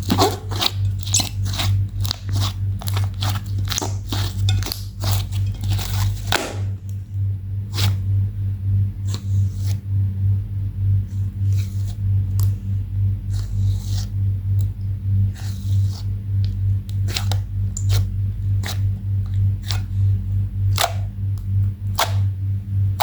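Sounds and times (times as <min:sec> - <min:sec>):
slime squished by hand: 0:00.0 - 0:06.9, 0:17.0 - 0:18.8, 0:19.6 - 0:19.9
low pulsing bass: 0:00.0 - 0:23.0.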